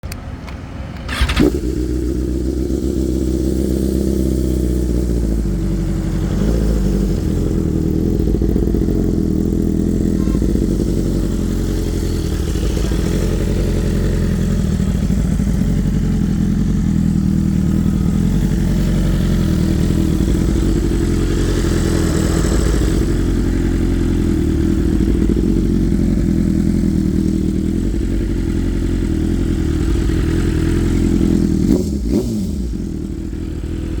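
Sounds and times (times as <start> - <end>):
motorcycle engine idling loudly: 1.1 - 34.0.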